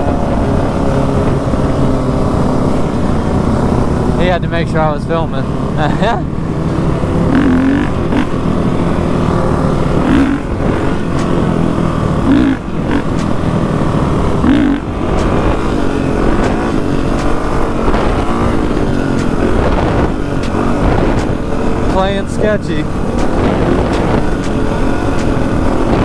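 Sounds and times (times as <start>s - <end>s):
dirt bike engine running: 0.0s - 26.0s
wind noise on microphone: 14.3s - 26.0s.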